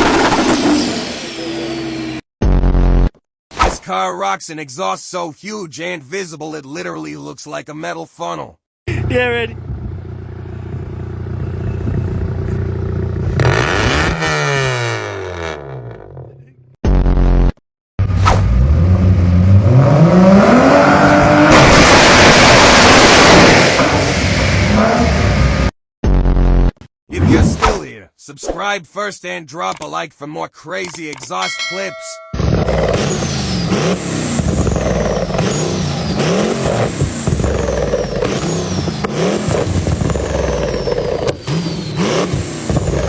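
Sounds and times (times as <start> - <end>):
car engine revving: 0.0 - 2.2, 9.0 - 16.6, 18.1 - 25.7, 32.6 - 43.0.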